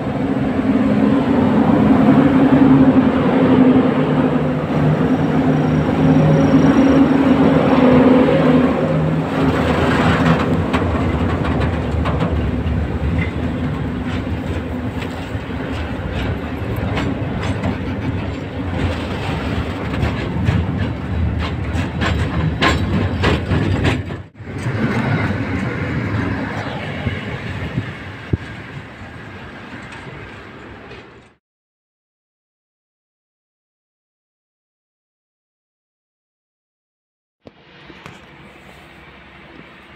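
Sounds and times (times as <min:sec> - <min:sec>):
wagons rumbling past: 0:00.0 - 0:31.3
electric locomotive humming: 0:00.0 - 0:31.4, 0:37.5 - 0:39.9
wheels clacking over rail joints: 0:07.4 - 0:26.8, 0:27.4 - 0:31.4.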